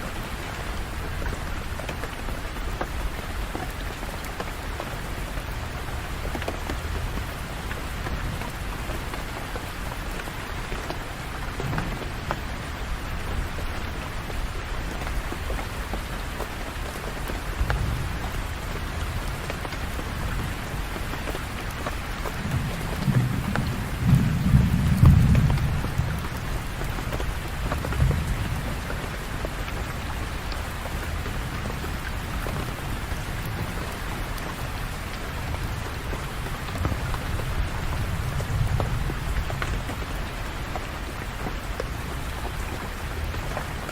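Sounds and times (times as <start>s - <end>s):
steady rain falling: 0.0s - 43.9s
rain drop ticks: 0.1s - 43.9s
low thunder rumble: 11.5s - 14.0s, 22.3s - 31.2s.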